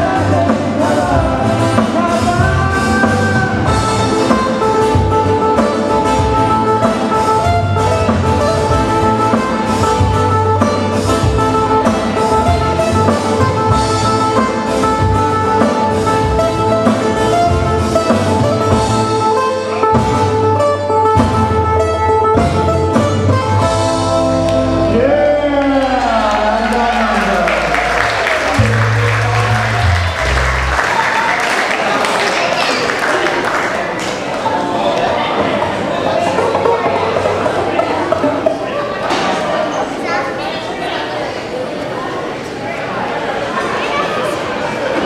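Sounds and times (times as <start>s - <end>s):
drum kit: 0.0s - 24.9s
bass: 0.0s - 32.8s
guitar: 0.0s - 40.4s.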